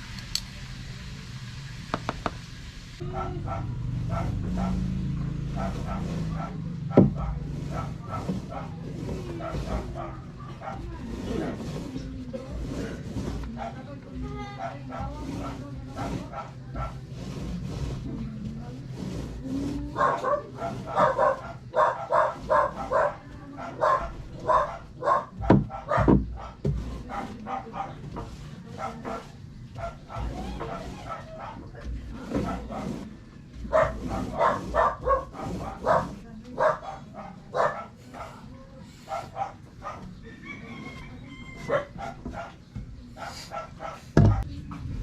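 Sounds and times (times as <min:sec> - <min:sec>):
dog barking: 0:03.0 - 0:11.6, 0:13.6 - 0:13.8, 0:14.6 - 0:17.0, 0:19.9 - 0:33.0, 0:33.7 - 0:40.2, 0:41.6 - 0:44.4.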